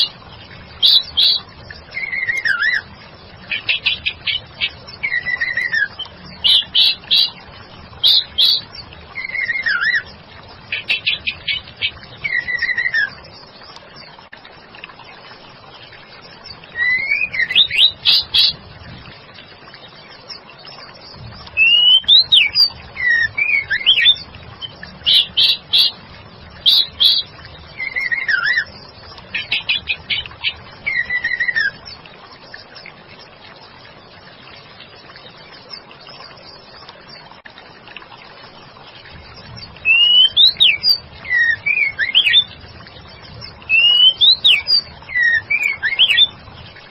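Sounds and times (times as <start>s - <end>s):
steady low hiss: 0.0s - 46.9s
bird singing whistles: 0.8s - 2.8s, 5.0s - 7.3s, 8.0s - 10.1s, 10.9s - 13.2s, 16.8s - 18.6s, 21.6s - 26.0s, 26.7s - 28.7s, 30.8s - 31.8s, 39.8s - 42.5s, 43.7s - 46.3s.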